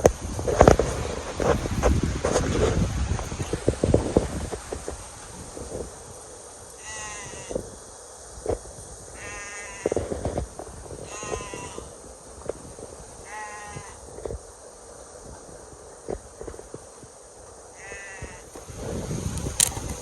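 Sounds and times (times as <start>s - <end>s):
farm animal bleating: 6.8s - 7.6s, 11.0s - 11.9s, 13.2s - 13.9s, 17.8s - 18.4s.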